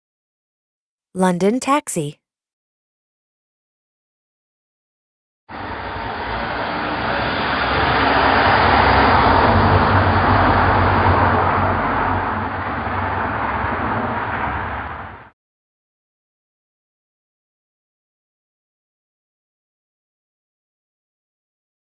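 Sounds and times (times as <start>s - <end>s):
car engine running: 5.5s - 15.3s
road noise: 5.5s - 15.3s.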